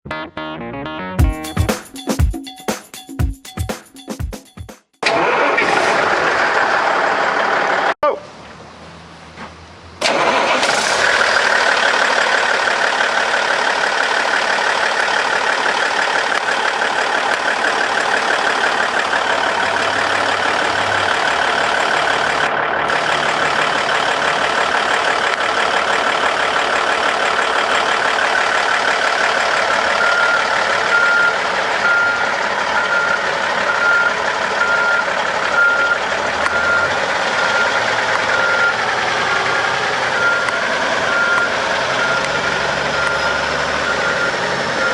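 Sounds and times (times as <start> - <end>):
dump truck engine running: 5.0 - 44.9
backup alarm beeping: 30.0 - 44.9.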